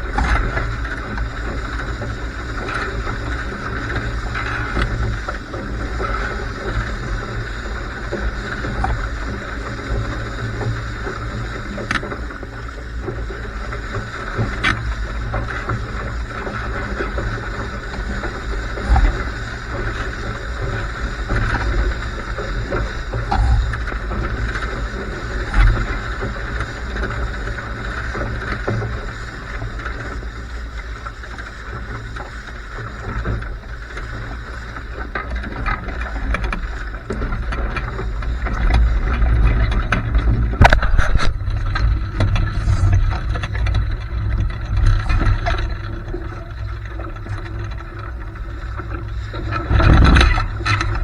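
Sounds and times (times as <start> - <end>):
water rushing past boat: 0.0 - 51.0
wind buffeting microphone: 12.9 - 28.0, 36.4 - 51.0.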